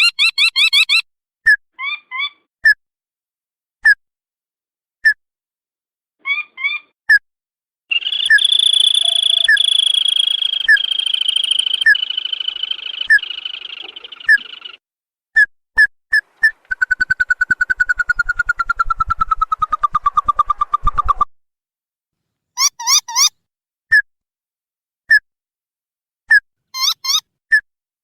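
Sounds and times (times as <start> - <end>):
rattling bird trill: 0.0 - 1.0, 7.9 - 14.8, 26.8 - 27.2
sharp bird call notes: 7.9 - 14.8.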